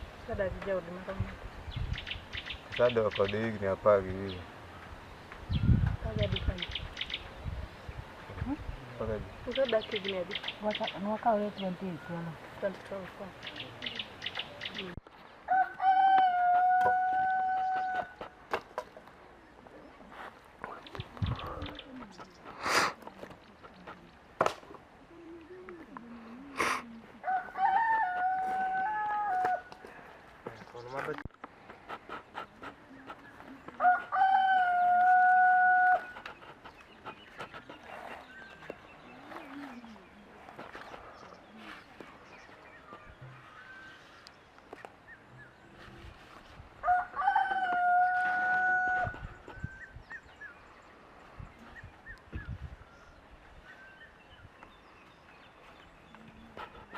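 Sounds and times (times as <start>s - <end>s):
small bird chirps: 5.5s - 7.4s
rooster crowing: 15.5s - 18.2s, 27.2s - 29.8s, 33.8s - 36.1s, 46.8s - 49.3s.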